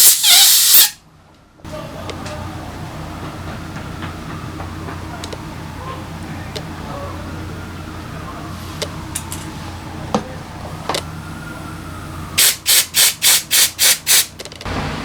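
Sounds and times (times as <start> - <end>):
hissing spray blasts: 0.0 - 1.0, 12.4 - 15.0.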